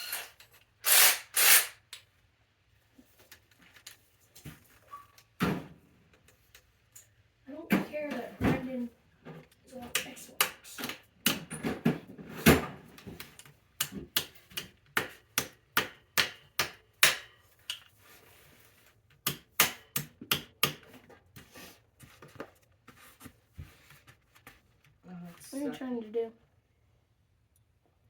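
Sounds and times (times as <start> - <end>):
tool striking bicycle part: 13.8 - 17.8, 19.2 - 20.9.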